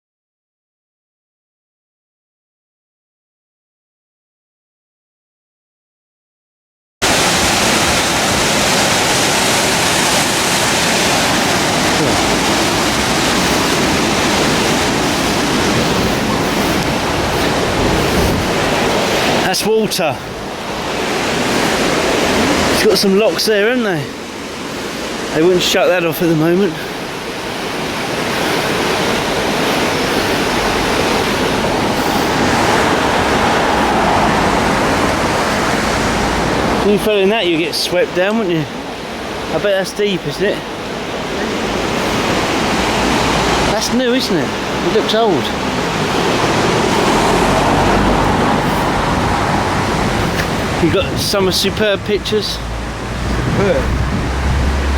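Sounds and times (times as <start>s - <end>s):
floodwater rushing in river: 7.0s - 54.9s.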